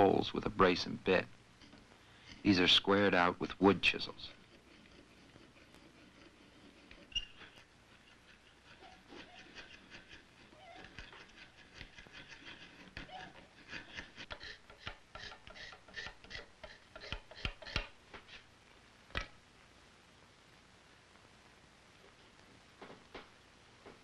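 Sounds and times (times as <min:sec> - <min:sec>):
chisel scraping wood: 0:04.3 - 0:18.5
chisel knocks: 0:14.7 - 0:18.2.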